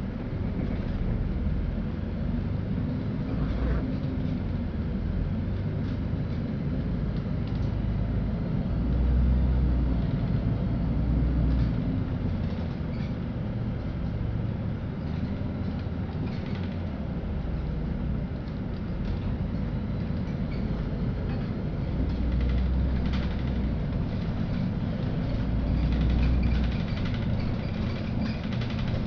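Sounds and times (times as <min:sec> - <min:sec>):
bus engine and road rumble: 0:00.0 - 0:29.0
faint rattles: 0:19.0 - 0:29.0.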